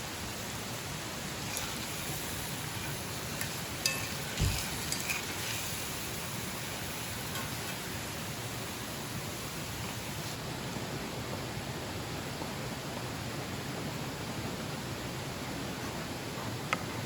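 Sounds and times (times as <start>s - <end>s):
running water hiss: 0.0s - 10.7s.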